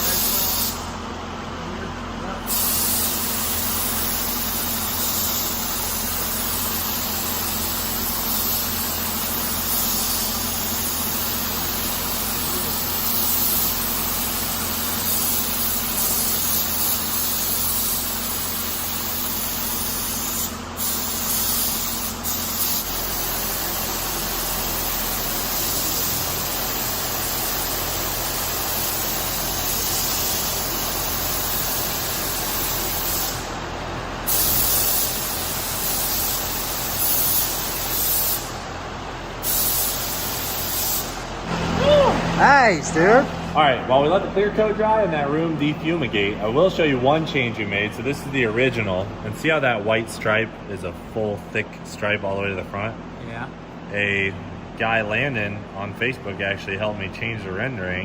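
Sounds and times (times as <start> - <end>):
paint spray gun hissing: 0.0 - 0.9, 2.5 - 33.5, 34.3 - 38.7, 39.4 - 41.3.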